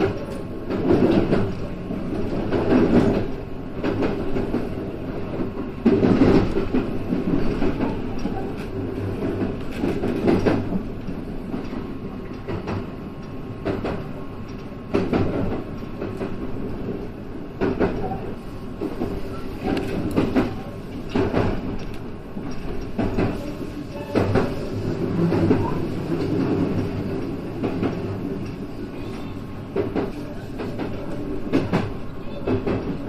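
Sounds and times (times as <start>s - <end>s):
train running rumble and hum: 0.0s - 33.0s.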